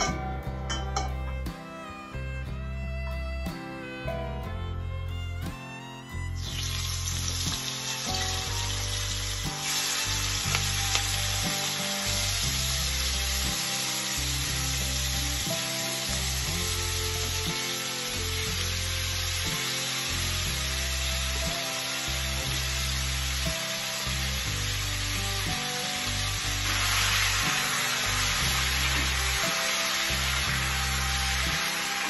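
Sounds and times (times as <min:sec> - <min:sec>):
prawns sizzling and spitting in oil: 0:06.4 - 0:32.0.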